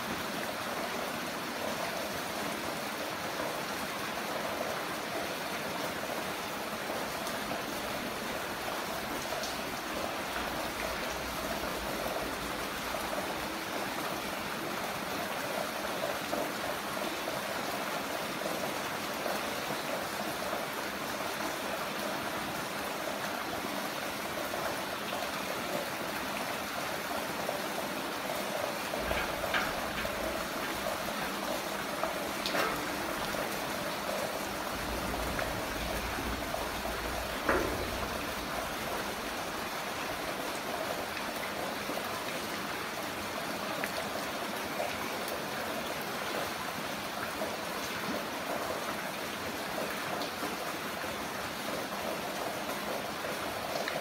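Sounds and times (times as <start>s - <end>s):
heavy rain falling: 0.0s - 54.0s
water splashes: 24.8s - 43.3s.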